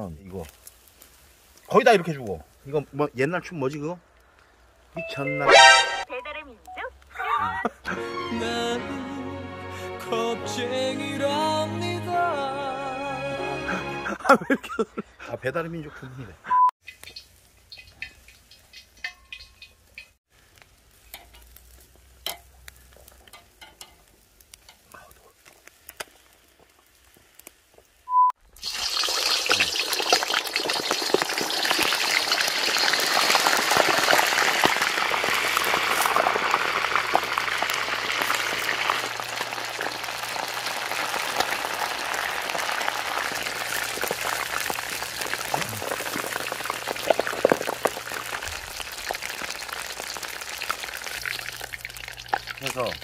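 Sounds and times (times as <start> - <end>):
frying in hot oil: 0.0 - 5.0, 16.8 - 53.0
short beep: 5.0 - 6.8.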